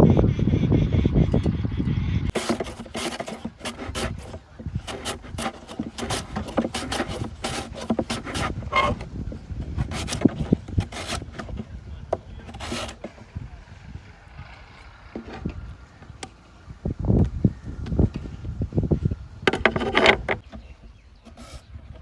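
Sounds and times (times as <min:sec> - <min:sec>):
potato scraped against blade: 0:02.3 - 0:11.6, 0:12.4 - 0:13.2, 0:21.3 - 0:21.7.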